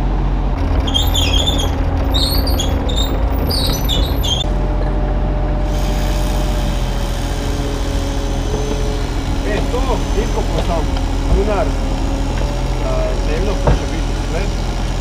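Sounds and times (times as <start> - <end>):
diesel engine humming: 0.0 - 15.0
hydraulic whine: 0.0 - 15.0
short high squeaks: 0.7 - 4.5.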